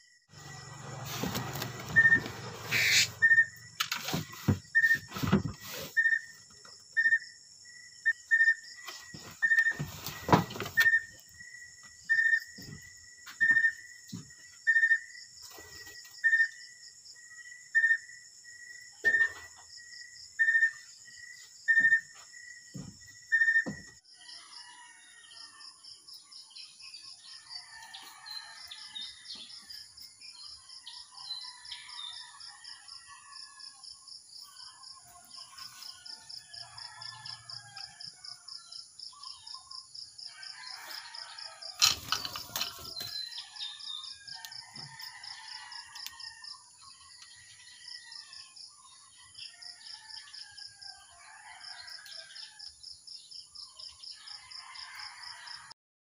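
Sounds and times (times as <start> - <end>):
birds chirping: 1.4 - 6.4.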